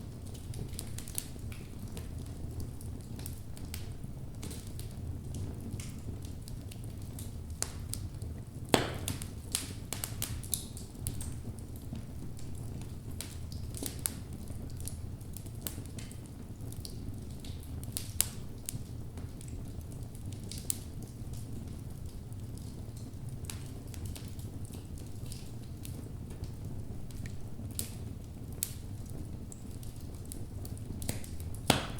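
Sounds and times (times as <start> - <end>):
fire crackling and popping: 0.0 - 31.9
low rumble of flames: 0.0 - 31.9.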